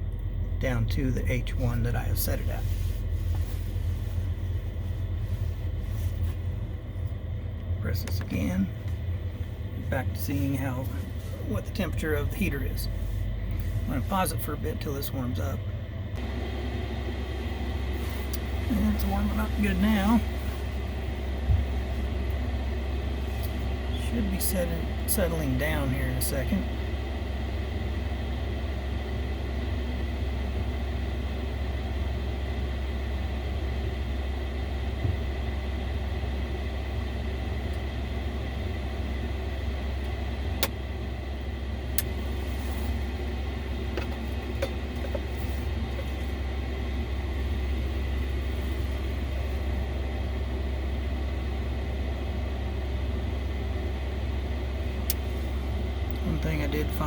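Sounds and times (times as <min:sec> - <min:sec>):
heater burner and fan rumble: 0:00.0 - 0:57.0
thin steady whine: 0:00.0 - 0:57.0.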